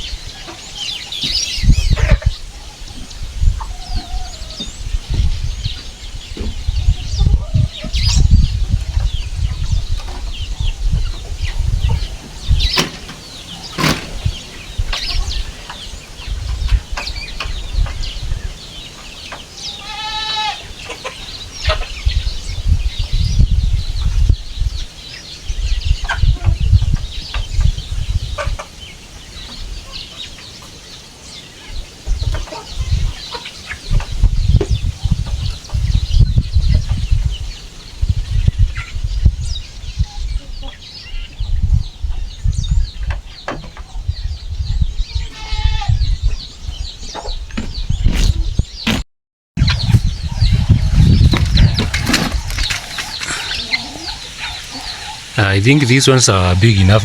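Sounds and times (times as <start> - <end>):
chicks peeping: 0.0 - 49.0, 49.6 - 57.0
chicken calling: 18.9 - 22.0, 49.6 - 57.0.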